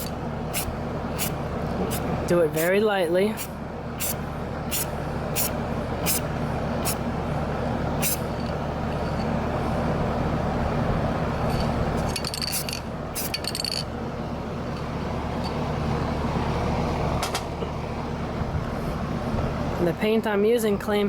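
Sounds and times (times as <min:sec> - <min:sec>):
spray paint can hissing: 0:00.0 - 0:02.0, 0:04.0 - 0:07.0, 0:08.0 - 0:08.3
steady low hum: 0:00.0 - 0:21.0.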